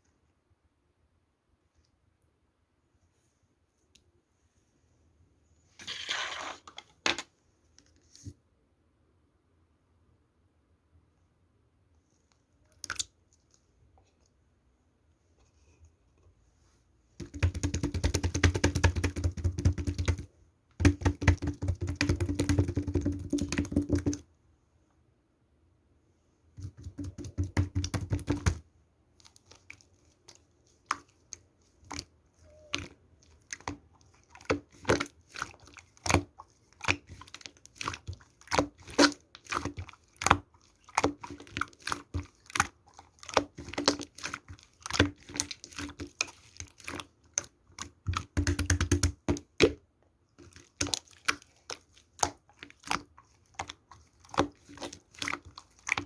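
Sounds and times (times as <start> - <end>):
hands kneading sticky slime: 12.6 - 14.7, 17.2 - 24.3, 26.4 - 56.0.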